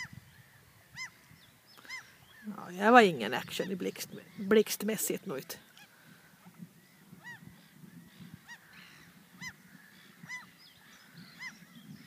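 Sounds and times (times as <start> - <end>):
goose-like bird honking: 8.4 - 10.6.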